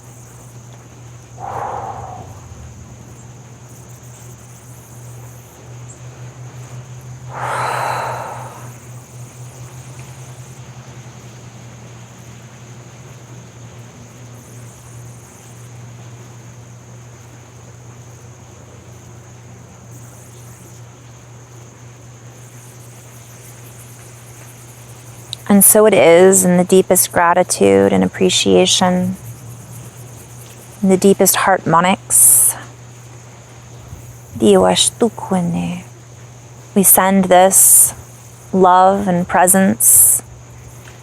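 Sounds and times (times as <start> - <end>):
high insect trill: 0.0 - 41.0
loud breathy whoosh: 1.4 - 3.3, 7.3 - 8.8
low steady hum: 1.4 - 3.7, 6.4 - 9.4, 25.3 - 40.7.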